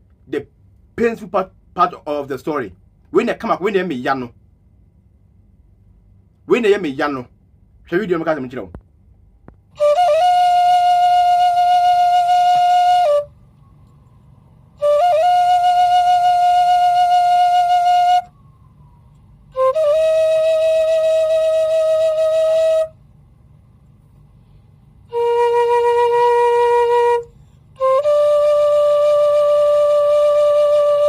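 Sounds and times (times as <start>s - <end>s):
mournful flute-like music: 9.8s - 23.0s, 25.1s - 31.0s.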